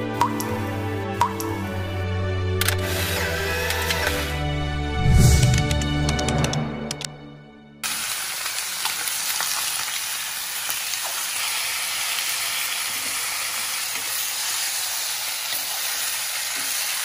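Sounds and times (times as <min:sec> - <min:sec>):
chicken frying in wok: 0:07.8 - 0:17.0.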